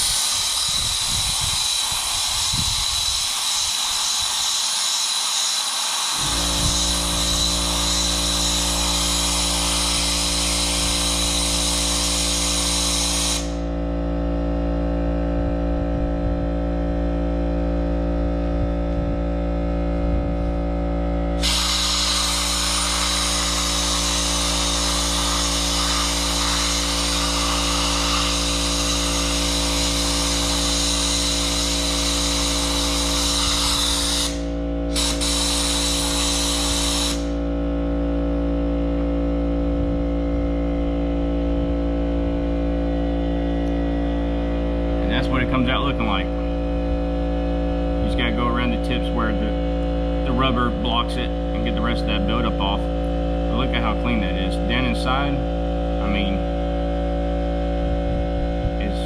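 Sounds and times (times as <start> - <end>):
compressed air blasting grit: 0.0 - 13.7, 21.3 - 37.8
steady low hum: 6.2 - 59.0.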